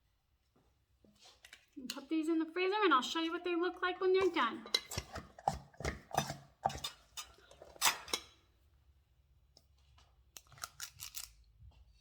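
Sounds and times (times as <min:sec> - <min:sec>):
dishes and utensils clinking: 0:04.2 - 0:08.4.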